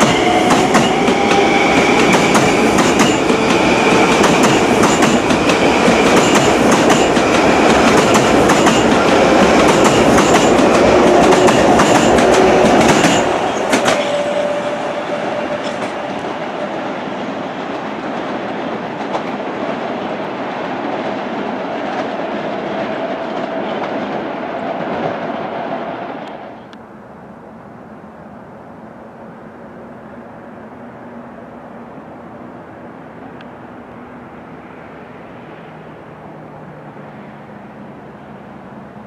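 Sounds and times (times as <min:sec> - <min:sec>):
train wheels clicking over joints: 0:00.0 - 0:14.6
train rumble: 0:00.0 - 0:39.0.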